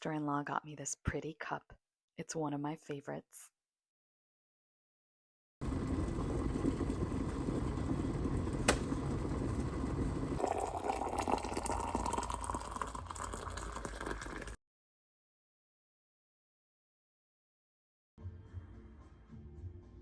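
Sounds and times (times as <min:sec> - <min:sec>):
liquid pouring into cup: 0:05.6 - 0:14.6
tea bubbling on the boil: 0:05.6 - 0:14.6.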